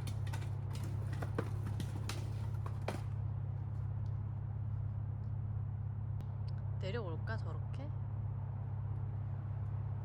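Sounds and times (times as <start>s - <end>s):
firewood logs clattering: 0.0s - 3.4s.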